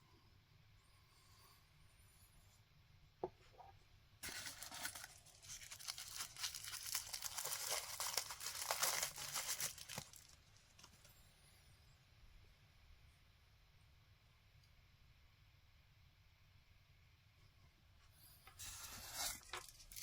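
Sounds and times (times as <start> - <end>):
packaging being torn and crinkled: 4.2 - 11.0, 18.7 - 20.0.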